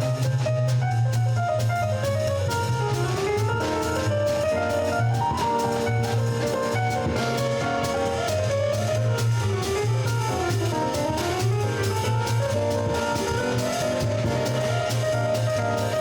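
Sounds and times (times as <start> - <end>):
bass line: 0.0 - 16.0
drum kit and cymbals: 0.0 - 16.0
jazz melody: 0.0 - 16.0.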